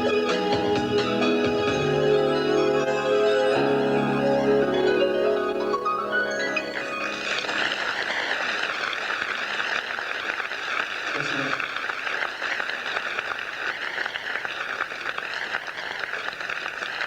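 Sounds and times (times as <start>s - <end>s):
dense crackling noise: 6.1s - 17.0s.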